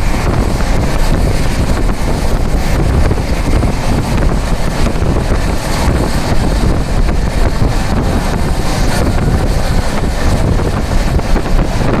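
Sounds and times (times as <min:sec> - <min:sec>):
deep rumble of vehicle: 0:00.0 - 0:12.0
wind buffeting microphone: 0:00.0 - 0:12.0.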